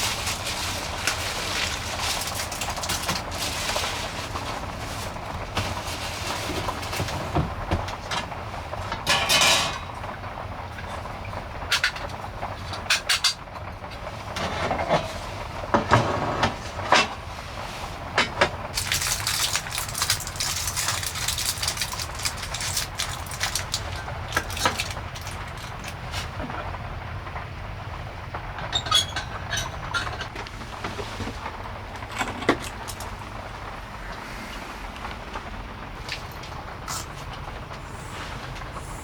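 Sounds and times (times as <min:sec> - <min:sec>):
truck road and engine rumble: 0:00.0 - 0:39.0
knocks and rattles: 0:28.5 - 0:33.3
hiss of wet road: 0:33.3 - 0:35.9, 0:36.8 - 0:39.0.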